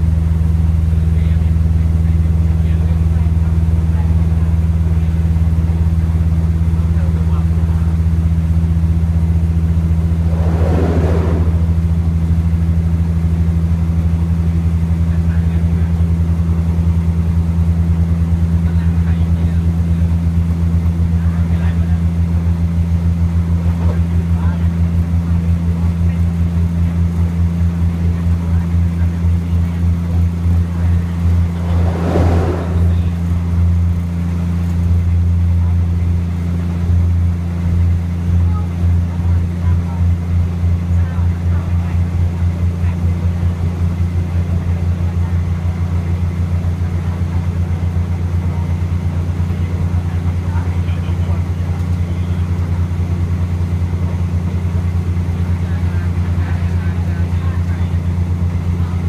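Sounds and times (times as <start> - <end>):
diesel engine drone: 0.0 - 59.0
train interior drone: 9.6 - 12.9, 28.5 - 34.7
brief rush of noise: 10.0 - 12.2, 31.1 - 33.6.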